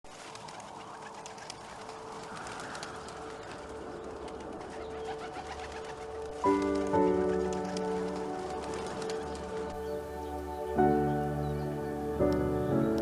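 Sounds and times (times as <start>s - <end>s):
bird cooing: 1.6s - 10.1s
music: 3.2s - 13.0s
light ticks: 12.3s - 13.0s.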